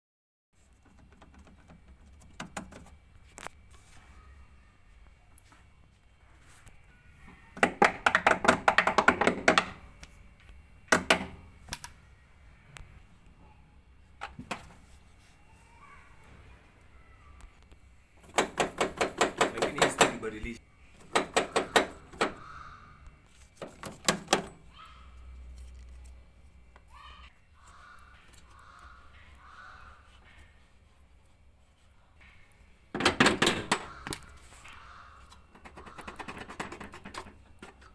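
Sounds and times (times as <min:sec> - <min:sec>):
faint rattles and scrapes: 0:00.6 - 0:04.5, 0:23.2 - 0:27.0, 0:27.6 - 0:37.9
hard knocks and rattles: 0:07.6 - 0:09.8, 0:18.2 - 0:20.2, 0:21.0 - 0:22.4, 0:33.0 - 0:34.1.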